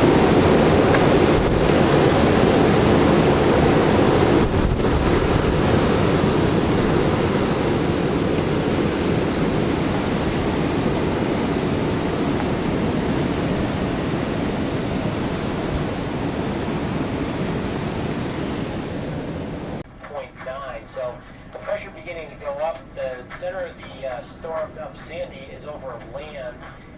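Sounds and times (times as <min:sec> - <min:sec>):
strong wind rushing: 0:00.0 - 0:19.8.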